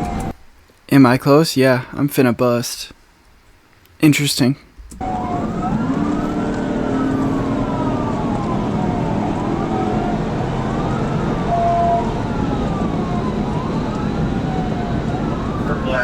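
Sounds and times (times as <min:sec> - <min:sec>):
police siren wailing: 0:00.0 - 0:00.4, 0:05.0 - 0:16.0
road and engine noise: 0:00.0 - 0:00.4, 0:04.9 - 0:16.0.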